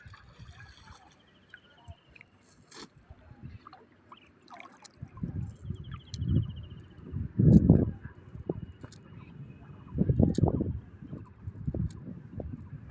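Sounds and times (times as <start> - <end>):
river water sloshing: 0.0 - 6.2.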